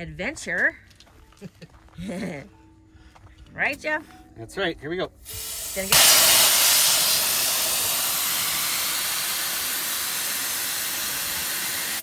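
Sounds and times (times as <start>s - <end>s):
air hissing out of tire: 5.2s - 12.0s.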